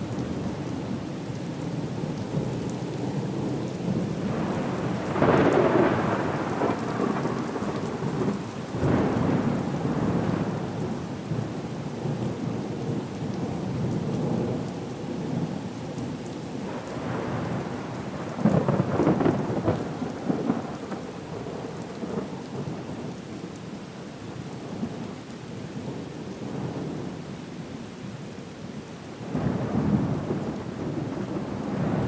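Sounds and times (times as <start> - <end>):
heavy rain: 0.0 - 32.0
rolling thunder: 3.9 - 11.4, 16.7 - 22.3, 29.3 - 32.0.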